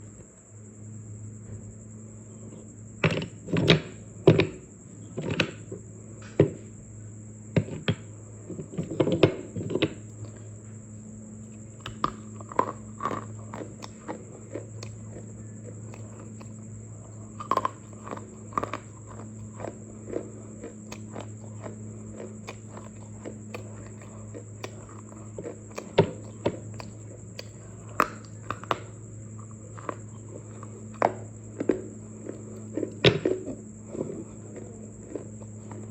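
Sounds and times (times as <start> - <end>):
steady low hum: 0.0 - 35.9
dry clay crunching: 11.4 - 35.9.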